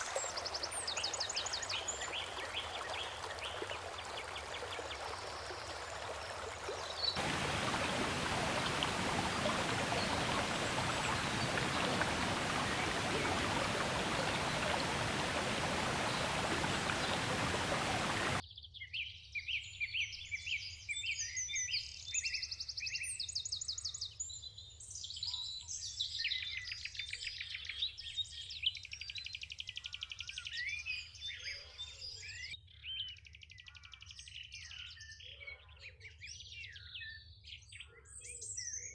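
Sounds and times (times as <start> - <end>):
songbirds trilling and chirping: 0.0 - 18.4.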